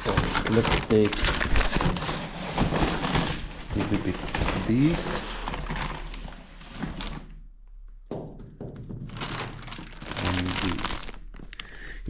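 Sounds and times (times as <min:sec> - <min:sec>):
knocks and thunk: 0:08.1 - 0:09.4
seeds rustling and rattling: 0:09.2 - 0:11.6.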